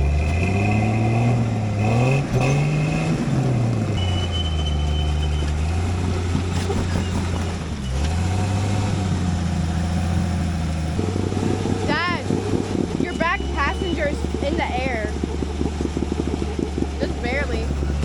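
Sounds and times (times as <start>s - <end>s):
engine revving: 0.0s - 18.0s.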